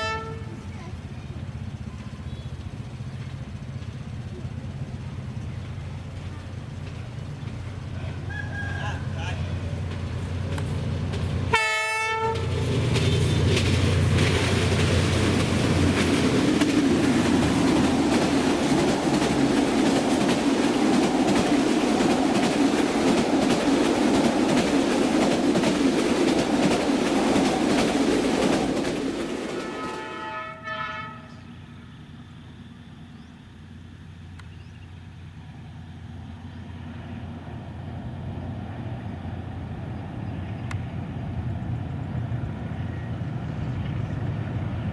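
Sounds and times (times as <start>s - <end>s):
train horn blast: 0.0s - 0.7s, 11.5s - 13.5s, 29.5s - 31.5s
train rumbling on rails: 0.0s - 44.9s.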